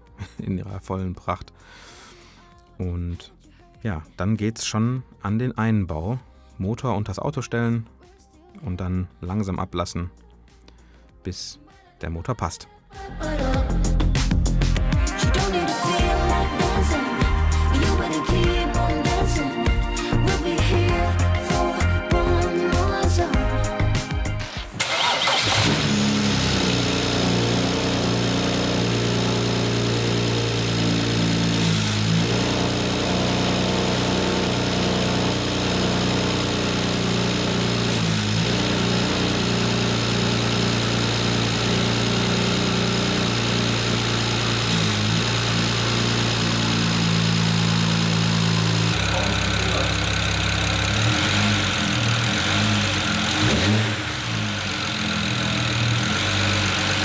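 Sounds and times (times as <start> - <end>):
car engine idling: 24.8 - 57.0.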